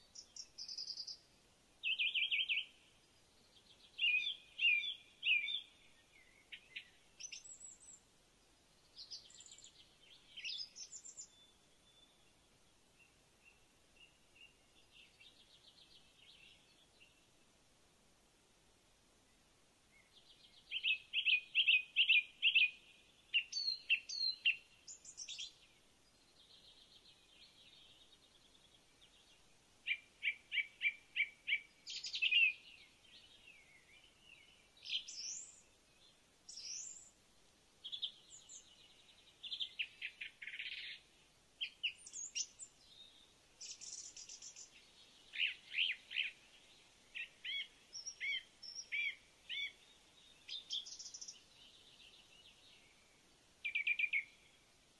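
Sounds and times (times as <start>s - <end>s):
birds chirping: 37.8s - 54.7s.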